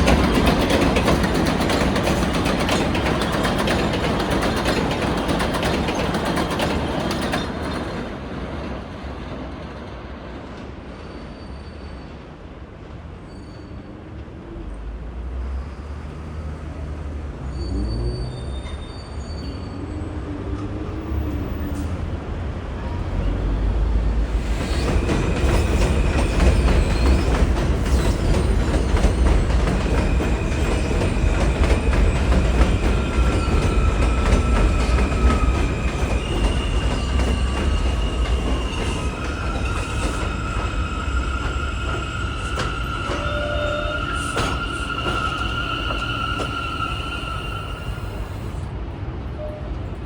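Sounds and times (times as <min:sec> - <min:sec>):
subway train rumble: 0:00.0 - 0:50.0
high-pitched wheel squeals: 0:17.4 - 0:20.2, 0:24.6 - 0:48.6.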